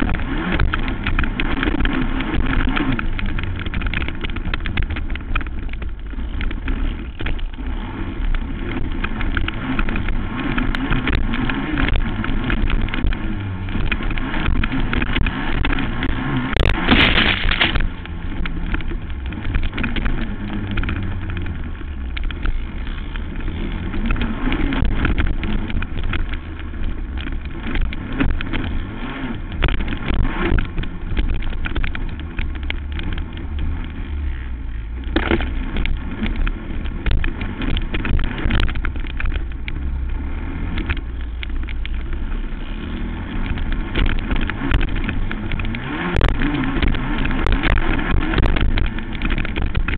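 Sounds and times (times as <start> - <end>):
quad engine revving: 0.0 - 49.9
loud rush: 16.4 - 18.4.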